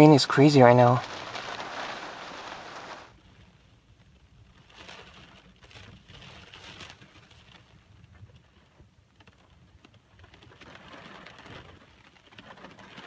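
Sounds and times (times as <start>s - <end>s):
faint uneven noise: 0.0s - 3.1s
heavy rain hiss: 0.0s - 3.1s
wind: 0.0s - 13.0s.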